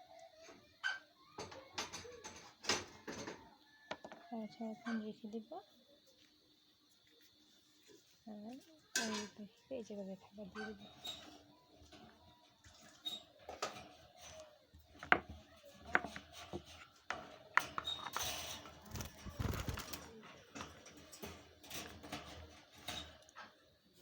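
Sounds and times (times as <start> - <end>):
food dishes clicking and knocking: 14.8 - 23.6.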